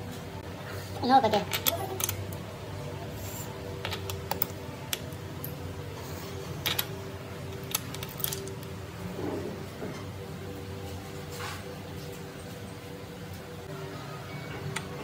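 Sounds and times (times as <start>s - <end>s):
metal parts clicking and tapping: 6.6s - 8.7s.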